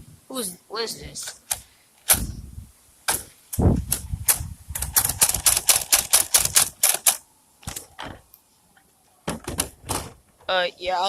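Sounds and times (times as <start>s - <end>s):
plastic toys clicking and clacking: 3.9s - 8.2s.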